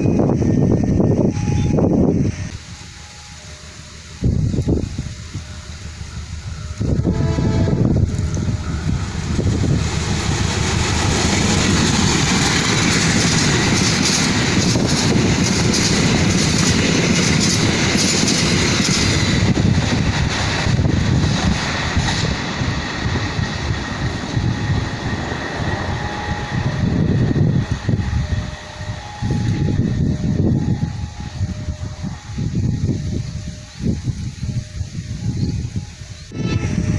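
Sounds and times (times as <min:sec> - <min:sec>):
train rushing past: 0:00.0 - 0:36.9
wheels clattering over rail joints: 0:09.8 - 0:26.3.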